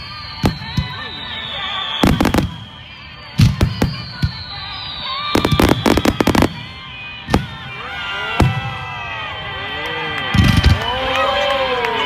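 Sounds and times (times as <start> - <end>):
fireworks bangs: 0.0 - 9.2, 10.3 - 10.9.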